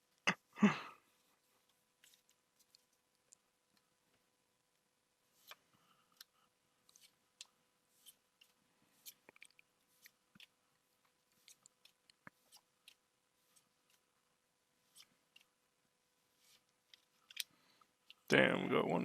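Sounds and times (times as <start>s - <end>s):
cards clicking and rustling: 5.3s - 14.0s, 16.4s - 18.3s.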